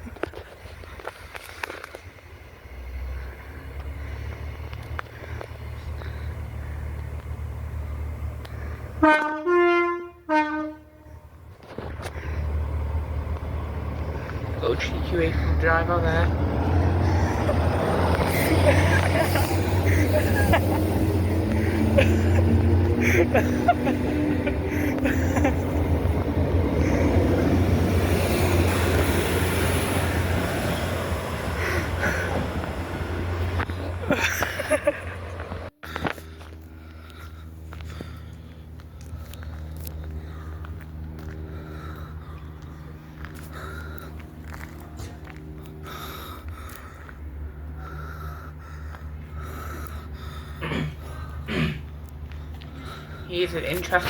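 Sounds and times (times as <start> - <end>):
diesel train engine rumbling: 0.0 - 54.0
two-tone train horn: 9.0 - 11.4
train wheel and rail noise: 10.3 - 35.7.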